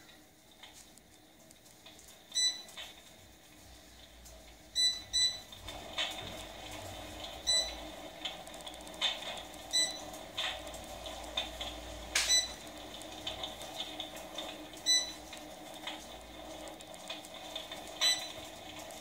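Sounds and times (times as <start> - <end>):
crackling fire sound effect: 0.2 - 4.7, 5.5 - 19.0
short electronic beeps: 2.4 - 2.7, 4.8 - 5.5, 7.5 - 7.8, 9.7 - 10.0, 12.3 - 12.6, 14.9 - 15.2.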